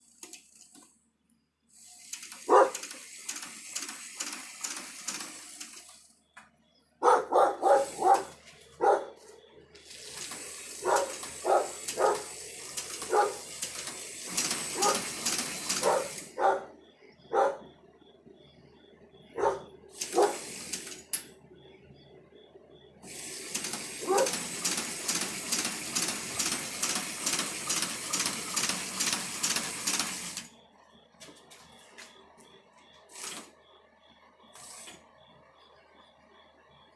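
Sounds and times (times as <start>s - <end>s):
hand-cranked sewing machine clatter: 2.0s - 5.9s, 9.8s - 16.3s, 23.5s - 30.4s.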